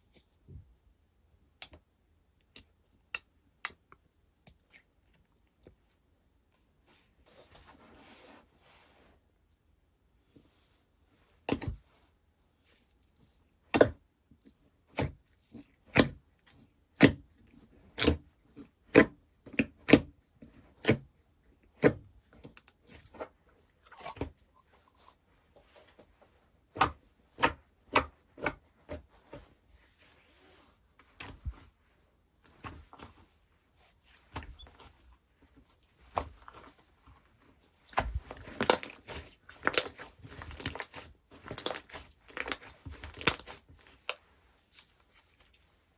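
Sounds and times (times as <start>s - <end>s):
slime squishes: 12.6s - 25.9s, 26.6s - 31.8s, 32.5s - 45.9s
slime crackling: 37.7s - 45.6s.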